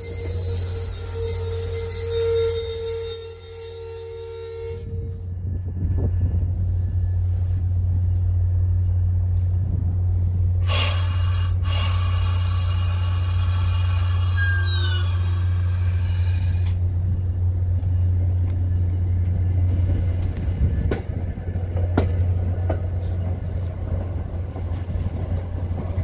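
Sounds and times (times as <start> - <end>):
falling wheel squeal: 0.0 - 5.1, 11.7 - 16.6
train rumbling slowly: 0.0 - 26.0.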